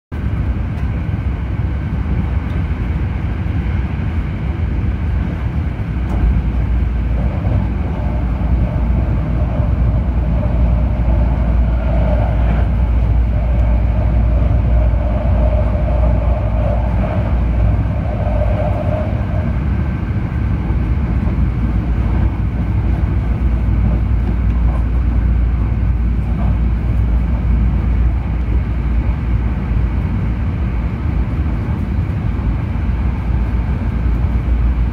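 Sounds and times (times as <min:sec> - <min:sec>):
train rumble inside car: 0:00.1 - 0:34.9
humming tone: 0:07.1 - 0:19.9.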